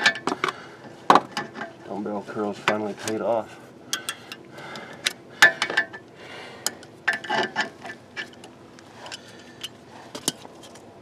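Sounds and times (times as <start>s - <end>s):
metal tools clinking: 4.0s - 4.4s.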